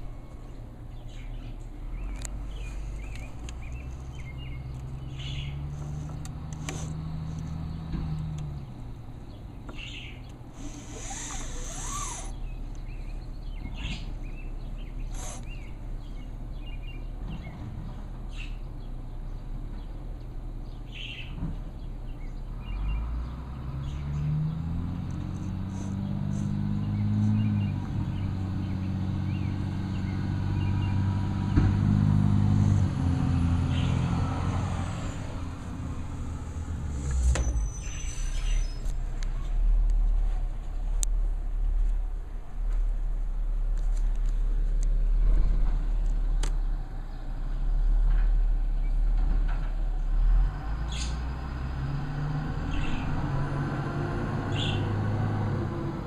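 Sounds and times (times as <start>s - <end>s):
diesel engine idling and revving: 0.0s - 56.0s
hiss burst: 10.6s - 12.3s.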